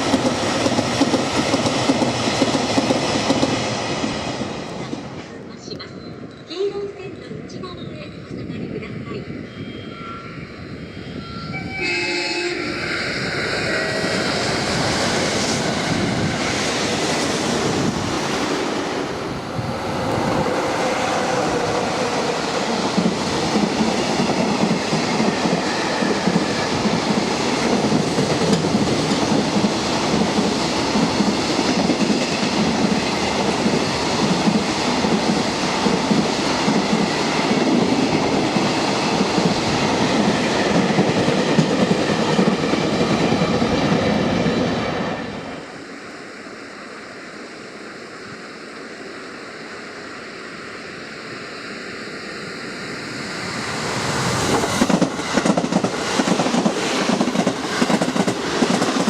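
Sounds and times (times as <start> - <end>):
electric train passing: 0.0 - 59.0
freight train wheels clattering: 53.9 - 59.0.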